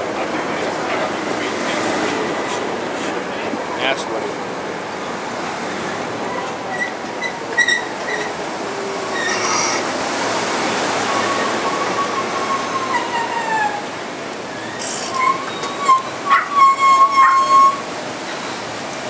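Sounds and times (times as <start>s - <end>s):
train wheel squeal: 6.3s - 8.4s, 9.1s - 9.9s, 11.0s - 13.9s, 14.5s - 18.7s.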